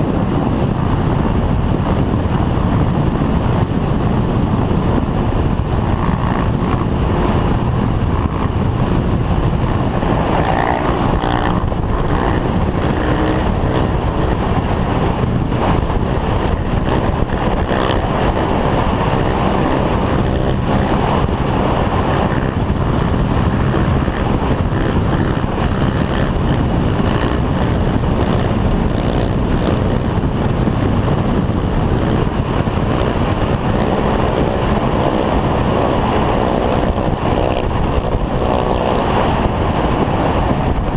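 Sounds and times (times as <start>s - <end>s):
vehicle engine running: 0.0s - 40.9s
wind rush on microphone: 0.0s - 40.9s.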